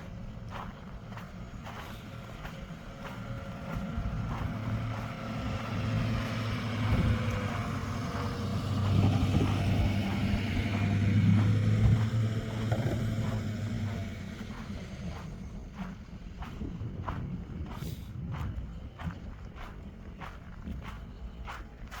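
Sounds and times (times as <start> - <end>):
car driving past: 3.6 - 15.4.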